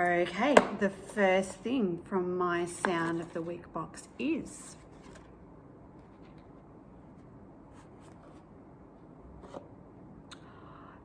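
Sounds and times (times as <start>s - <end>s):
faint rustling and handling: 4.6s - 8.6s.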